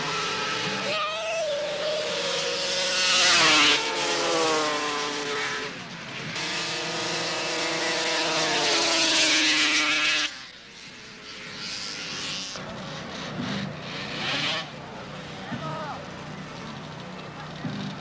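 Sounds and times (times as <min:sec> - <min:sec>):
snowmobile engines at full throttle: 0:00.0 - 0:18.0.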